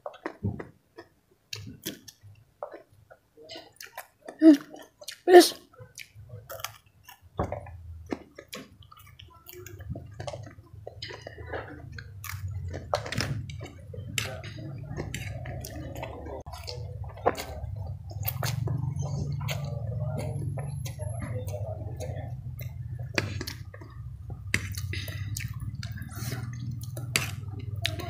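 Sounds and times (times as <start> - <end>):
person chewing with mouth clicks: 0.0 - 28.0
low steady hum: 9.7 - 28.0.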